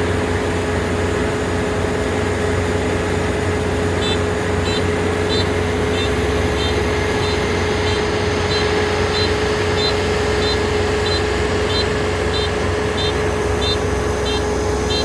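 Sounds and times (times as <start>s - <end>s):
combine harvester engine drone: 0.0s - 15.0s
steady machine whine: 0.0s - 15.0s
short high electronic beeps: 4.0s - 15.0s.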